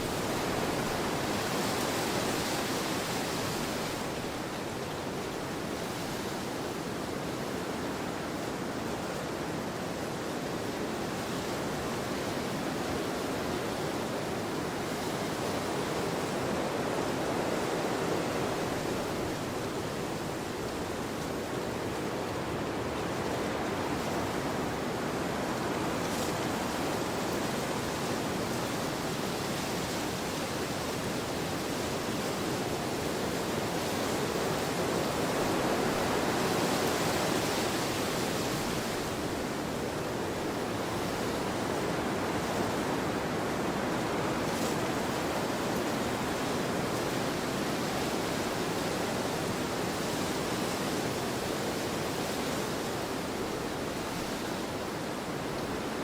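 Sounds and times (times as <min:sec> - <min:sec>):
wind blowing across a field: 0:00.0 - 0:56.0.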